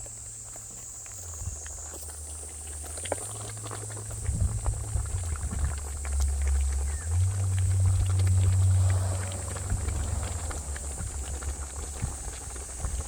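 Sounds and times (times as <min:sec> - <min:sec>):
insect trill: 0:00.0 - 0:13.0
pot boiling: 0:00.0 - 0:13.0
fire crackling: 0:00.1 - 0:13.0
low rumble: 0:04.1 - 0:13.0.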